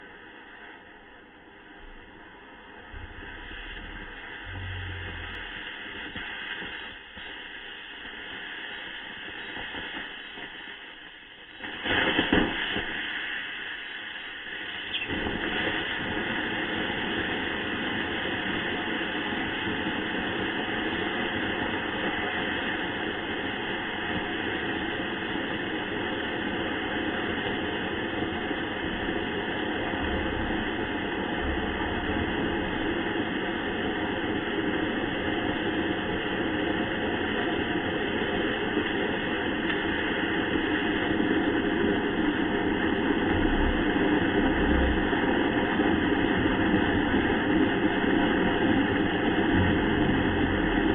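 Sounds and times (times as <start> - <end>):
rocket motor roaring: 1.9 - 6.4, 28.7 - 34.0, 42.1 - 50.9.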